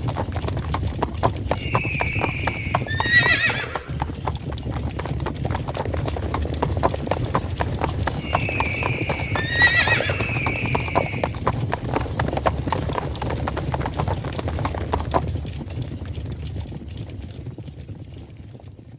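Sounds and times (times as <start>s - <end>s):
galloping hooves: 0.0s - 18.9s
horse neighing: 1.5s - 4.2s, 8.2s - 11.4s.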